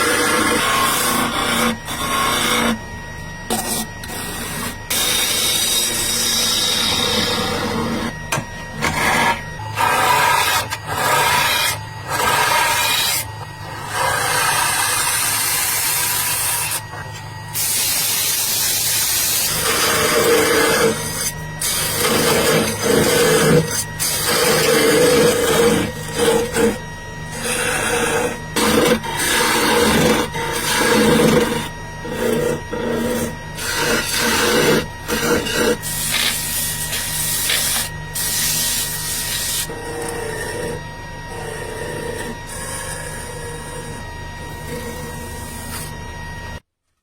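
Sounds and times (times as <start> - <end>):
wood lathe humming: 0.0 - 46.6
chisel scraping wood: 19.4 - 46.0.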